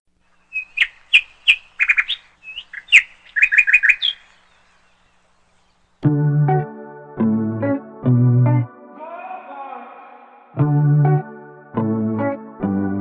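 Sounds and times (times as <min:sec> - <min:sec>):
small bird chirping: 0:00.2 - 0:06.0
gentle instrumental music: 0:06.0 - 0:09.5, 0:10.6 - 0:13.0.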